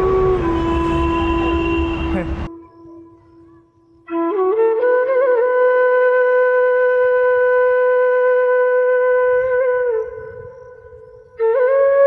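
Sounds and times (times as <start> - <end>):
wind instrument note: 0.0 - 3.2.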